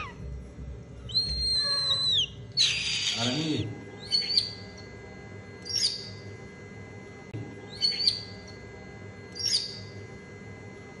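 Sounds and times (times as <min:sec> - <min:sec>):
high bird chirps: 0:01.1 - 0:04.8, 0:05.6 - 0:06.2, 0:07.7 - 0:08.4, 0:09.3 - 0:10.0.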